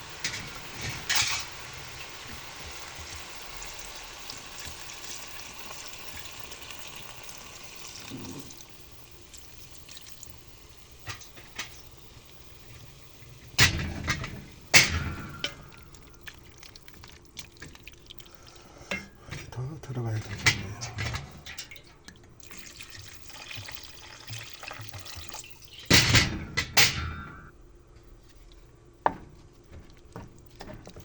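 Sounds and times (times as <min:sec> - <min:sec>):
cooking pot hissing: 0:00.0 - 0:16.1, 0:22.5 - 0:26.0.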